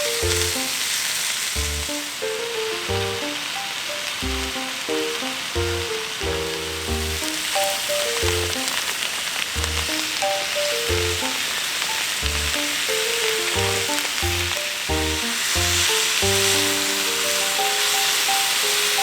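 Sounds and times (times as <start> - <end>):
background music: 0.0 - 0.8, 1.6 - 8.8, 9.6 - 11.5, 12.2 - 19.0
food sizzling in a pan: 0.0 - 19.0.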